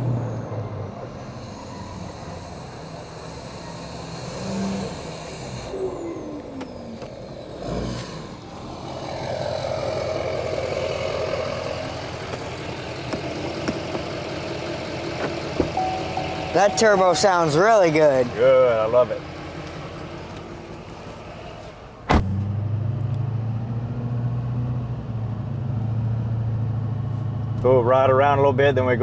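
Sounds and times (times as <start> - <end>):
turbocharger whistling: 0.0 - 20.7
diesel engine pulling under throttle: 0.0 - 29.0.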